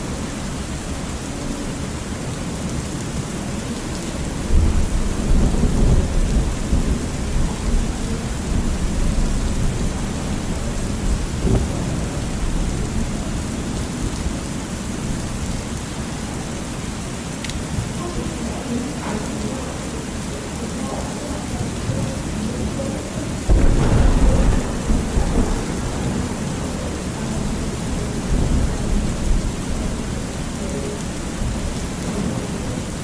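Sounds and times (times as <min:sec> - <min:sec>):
steady rain falling: 0:00.0 - 0:33.0
thunder rumbling: 0:04.1 - 0:15.5, 0:23.4 - 0:33.0.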